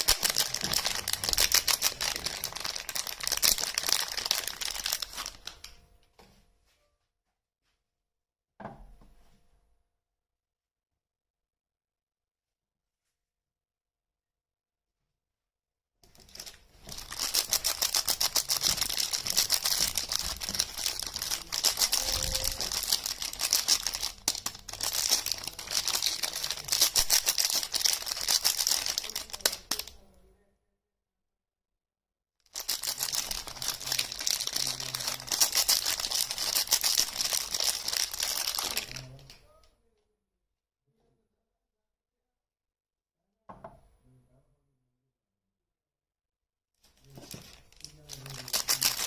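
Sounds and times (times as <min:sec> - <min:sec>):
soap packaging crinkling and tearing: 0:00.0 - 0:05.7, 0:16.1 - 0:30.0, 0:32.5 - 0:39.3, 0:47.1 - 0:49.0.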